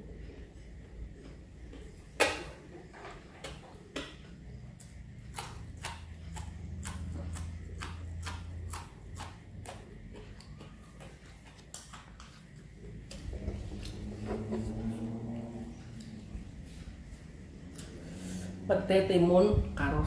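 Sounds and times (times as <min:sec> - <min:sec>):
crunching of bean being chewed: 0:03.4 - 0:16.2.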